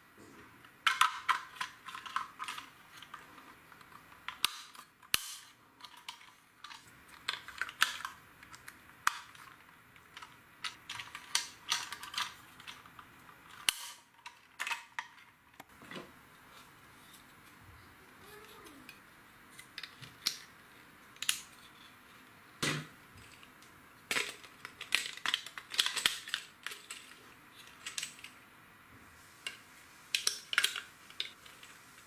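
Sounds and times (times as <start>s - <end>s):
plastic pieces clicking: 0.8s - 15.3s, 23.2s - 28.4s, 30.1s - 31.7s.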